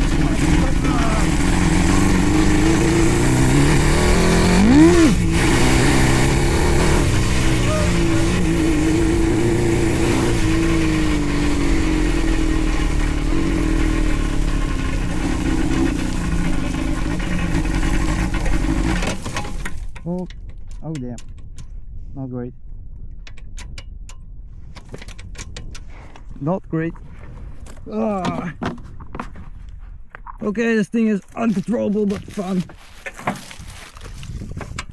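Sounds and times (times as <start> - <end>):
go-kart engine revving: 0.0 - 19.9.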